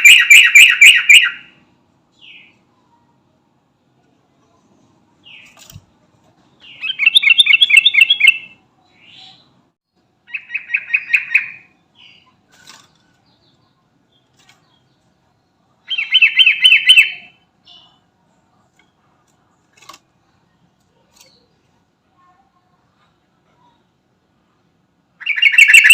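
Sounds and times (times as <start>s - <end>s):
bird singing bubbling phrases: 6.7s - 9.6s, 13.3s - 18.1s, 25.2s - 25.9s
soft bird calls: 25.2s - 25.9s.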